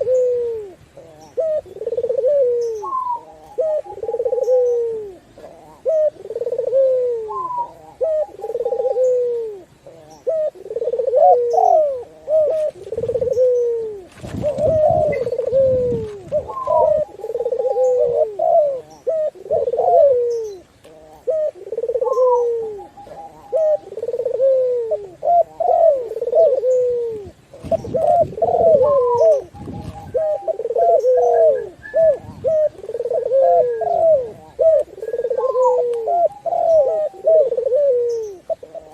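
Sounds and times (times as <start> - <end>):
doves cooing: 0.0 - 38.9.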